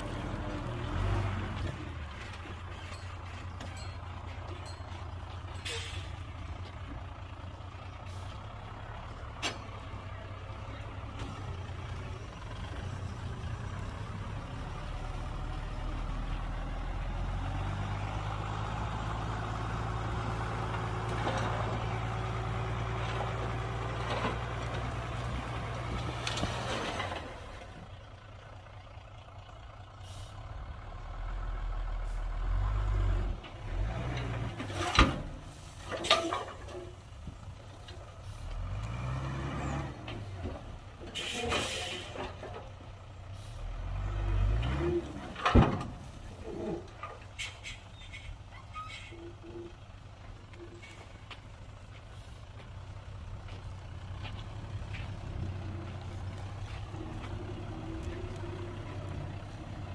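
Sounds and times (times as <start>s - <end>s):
dump truck diesel engine: 0.0s - 59.9s
air brake hisses: 41.2s - 42.2s.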